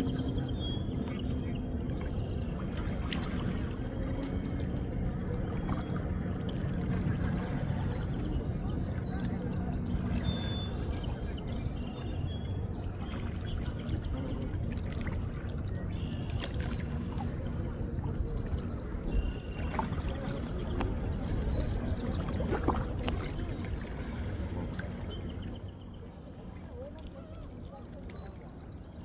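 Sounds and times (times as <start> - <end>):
shallow water trickling and lapping: 0.0 - 29.0
small splashes and clicks: 0.6 - 8.3, 12.8 - 25.2, 26.5 - 28.7.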